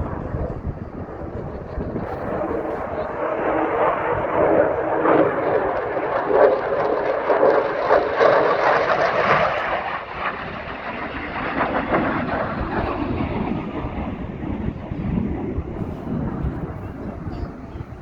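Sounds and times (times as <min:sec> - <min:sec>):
aircraft flying past: 0:00.0 - 0:18.0.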